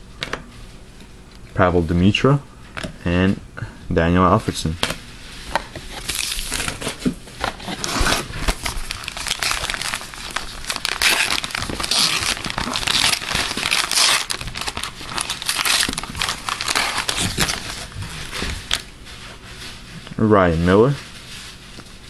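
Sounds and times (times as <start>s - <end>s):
wrapper crinkling and tearing: 5.7s - 18.9s.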